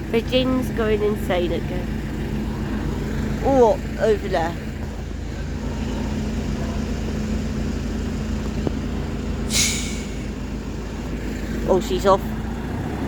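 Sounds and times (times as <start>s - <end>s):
bus diesel engine running: 0.0s - 13.0s
air brake hiss: 9.5s - 10.4s.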